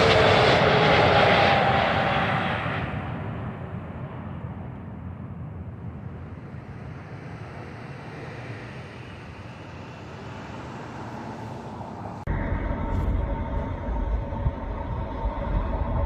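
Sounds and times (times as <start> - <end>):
jet airliner engine noise: 0.0 - 16.0
low rumble: 12.3 - 16.0.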